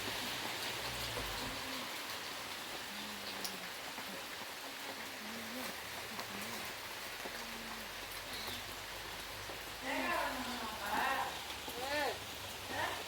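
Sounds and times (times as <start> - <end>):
raindrop ticks: 0.0 - 13.0
steady rain falling: 0.0 - 13.0.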